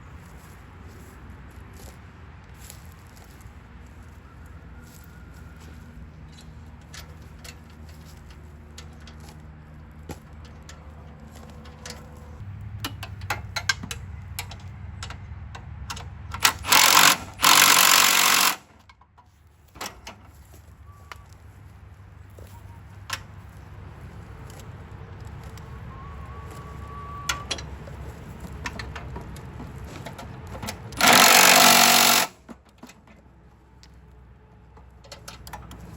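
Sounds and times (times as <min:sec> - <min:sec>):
power tool bursts: 0:16.4 - 0:18.7, 0:31.0 - 0:32.4
metal tools clicking and knocking: 0:30.0 - 0:33.0.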